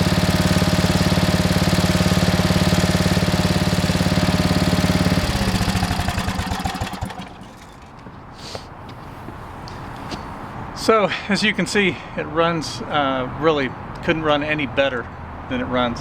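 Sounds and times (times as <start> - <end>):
tiller engine running: 0.0 - 8.1.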